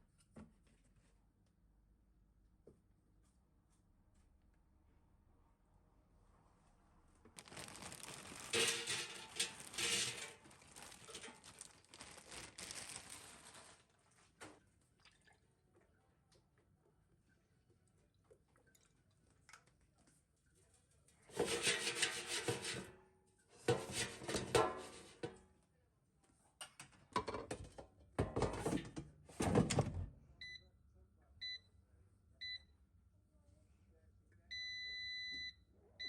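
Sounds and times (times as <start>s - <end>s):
kitchen clattering and rustling: 7.4s - 14.6s, 21.2s - 23.0s, 23.6s - 25.4s, 26.7s - 30.1s
appliance keypad beeps: 31.4s - 31.7s, 34.5s - 35.6s.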